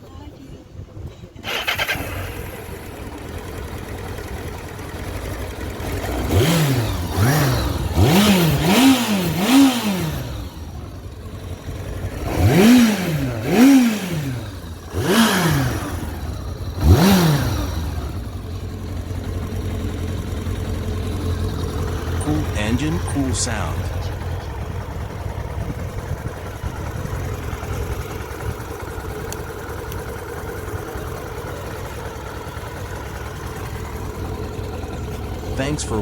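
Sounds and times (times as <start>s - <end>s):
motorcycle engine revving: 1.4s - 36.0s.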